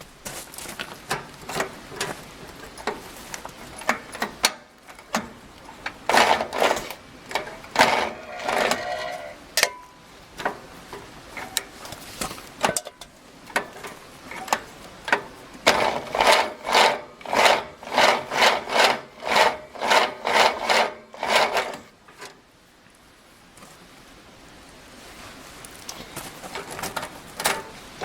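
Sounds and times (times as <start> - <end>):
rhythmic scraping strokes: 6.1 - 9.5, 15.7 - 21.9.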